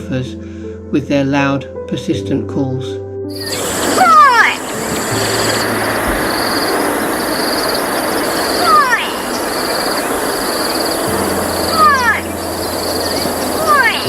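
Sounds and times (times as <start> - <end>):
insect trill: 3.3 - 14.0
background hiss: 3.4 - 14.0
bird alarm call: 3.4 - 14.0.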